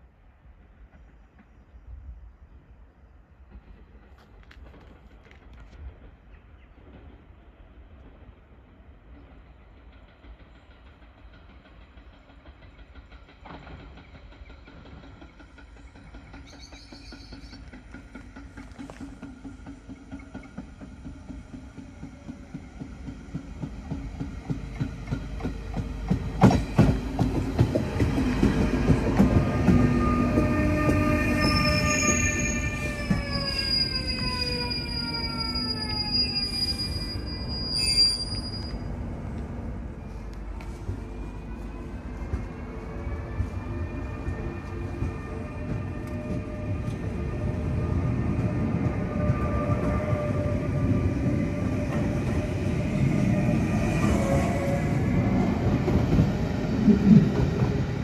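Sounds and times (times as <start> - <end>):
train rumble: 0.0 - 58.0
train wheel clatter: 3.4 - 34.7
high wheel squeal: 29.9 - 38.9.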